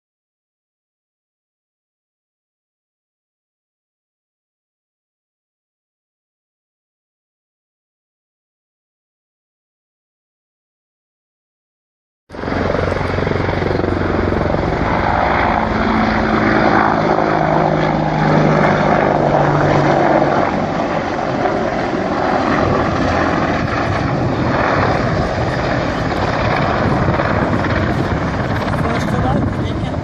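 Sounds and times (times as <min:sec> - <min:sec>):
aircraft roar: 0:12.3 - 0:30.0
steady engine tones: 0:12.3 - 0:30.0.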